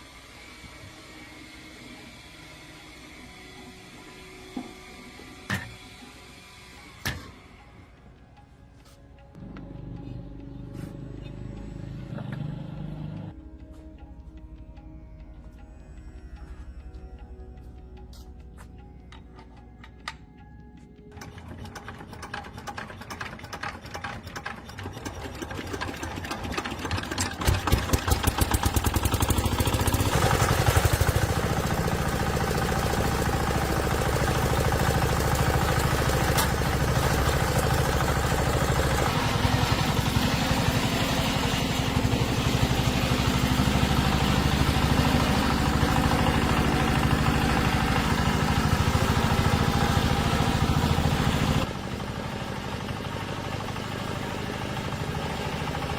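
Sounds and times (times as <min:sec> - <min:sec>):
diesel tractor engine starting: 0:09.3 - 0:13.4, 0:21.1 - 0:55.9.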